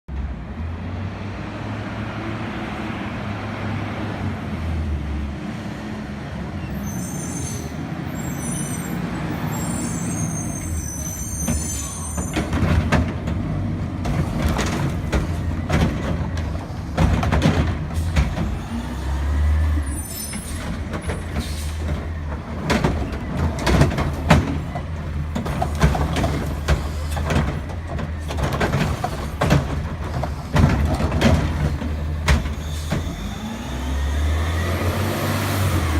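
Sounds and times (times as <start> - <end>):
high-pitched squeals: 6.6 - 12.4
garbage truck engine running: 12.0 - 34.5
irregular knocks and bangs: 14.0 - 18.6, 20.6 - 33.1.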